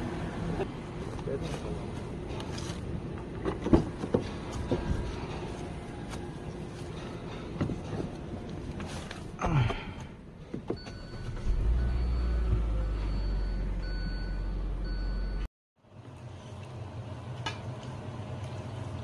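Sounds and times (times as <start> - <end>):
car engine starting and idling: 10.0 - 15.5.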